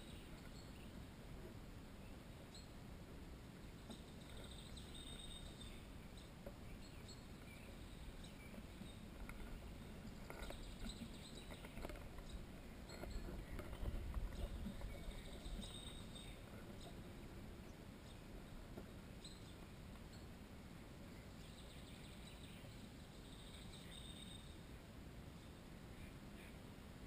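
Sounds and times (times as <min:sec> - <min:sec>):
small birds calling: 0:03.6 - 0:20.4.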